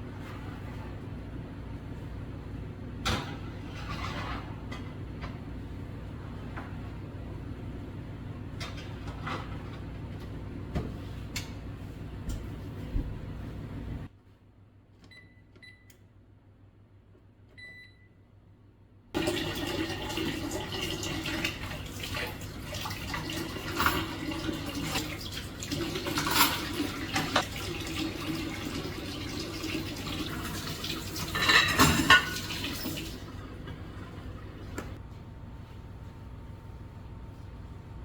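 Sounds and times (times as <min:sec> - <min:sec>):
water running: 0:19.2 - 0:35.0.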